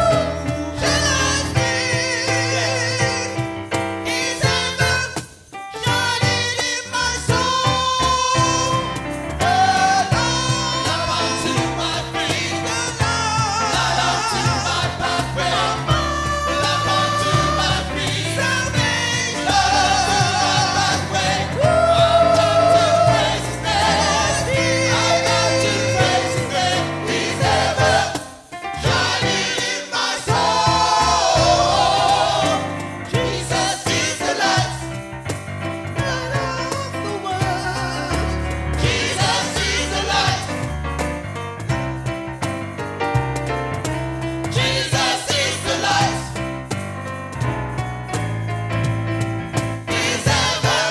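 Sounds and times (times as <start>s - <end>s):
gospel choir singing: 0.0s - 5.2s, 6.0s - 41.1s, 44.4s - 46.8s, 49.8s - 50.9s
steady bass line: 13.8s - 28.2s.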